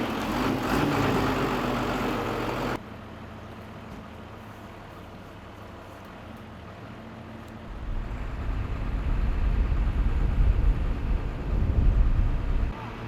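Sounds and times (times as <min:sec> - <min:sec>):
engine idling: 0:06.7 - 0:12.7
loud low rumble: 0:07.7 - 0:12.8.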